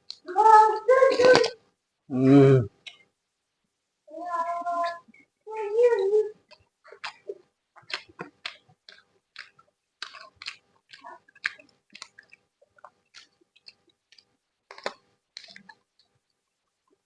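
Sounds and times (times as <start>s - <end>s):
person chewing food: 0.0s - 0.3s, 2.8s - 3.1s, 6.4s - 17.0s
mouth clicks and smacks: 2.8s - 3.1s, 6.5s - 16.2s.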